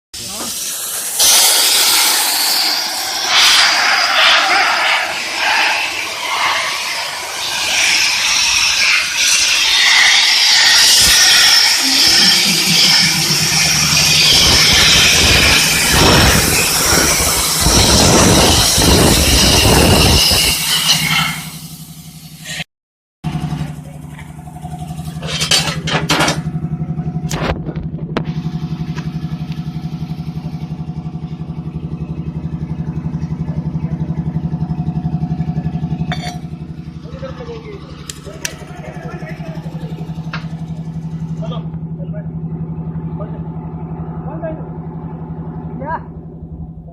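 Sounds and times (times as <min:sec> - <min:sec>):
sandblasting nozzle hissing: 0:00.2 - 0:22.6
low hum: 0:10.8 - 0:20.4, 0:23.3 - 0:46.9.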